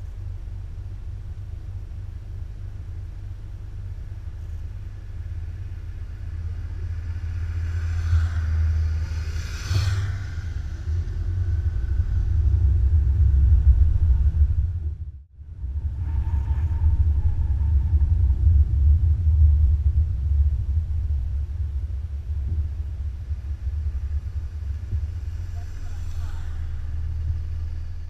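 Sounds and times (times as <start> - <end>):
wind and road noise on motorcycle: 0.0 - 28.0
vehicle rushing past: 4.9 - 20.1, 23.3 - 28.0.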